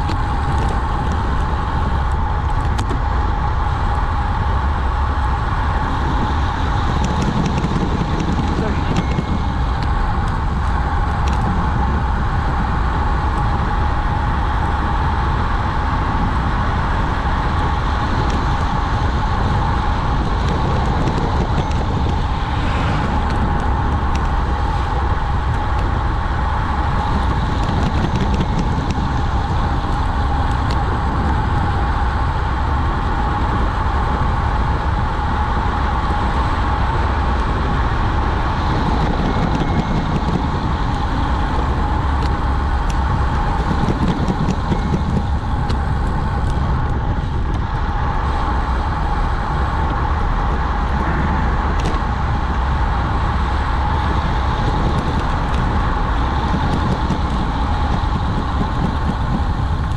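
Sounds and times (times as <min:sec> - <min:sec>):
road noise: 0:00.0 - 0:59.9
rushing wind: 0:00.0 - 0:59.9.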